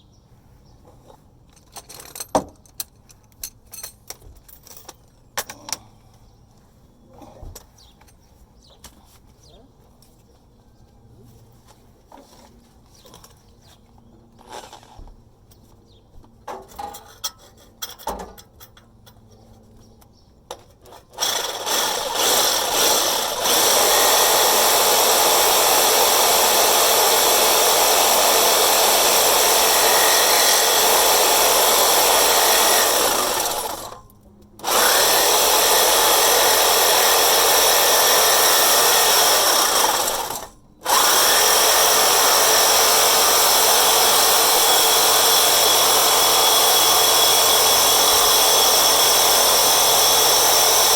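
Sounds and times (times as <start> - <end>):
power tool cutting pipe: 21.2 - 34.0, 34.6 - 50.9.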